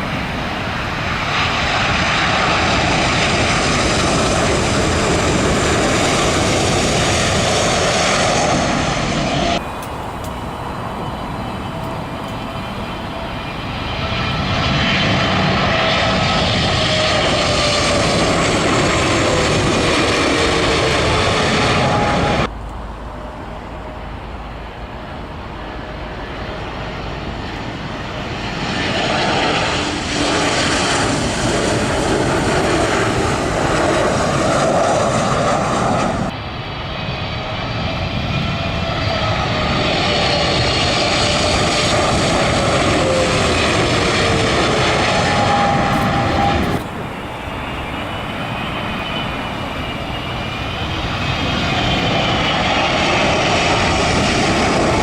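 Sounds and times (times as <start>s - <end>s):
jet airliners passing overhead: 0.0s - 55.0s
whining engine tones sliding down: 38.5s - 55.0s.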